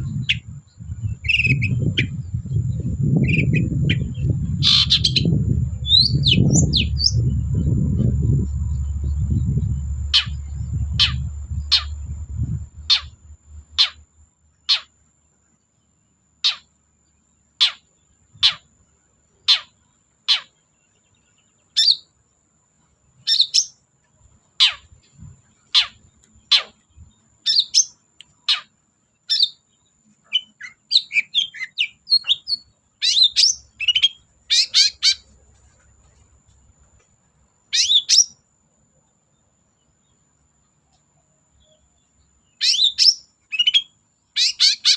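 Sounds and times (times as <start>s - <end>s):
faint high whine: 0.0s - 20.1s
bird singing: 0.0s - 44.9s.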